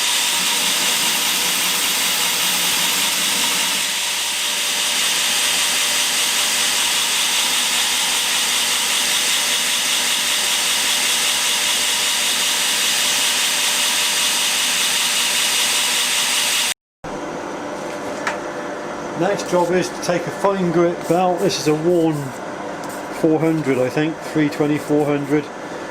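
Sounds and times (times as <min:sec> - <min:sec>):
belt grinder grinding: 0:00.0 - 0:16.8.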